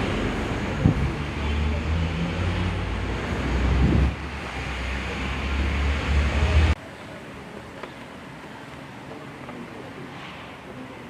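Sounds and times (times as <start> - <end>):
wind buffeting microphone: 0.0 - 1.4, 2.7 - 4.9
low engine rumble: 0.0 - 6.8.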